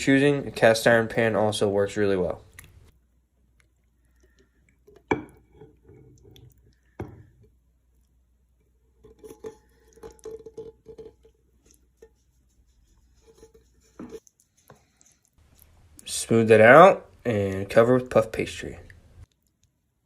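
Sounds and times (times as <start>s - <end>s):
utensil scraping filling from pot: 4.2s - 7.6s, 8.5s - 16.5s.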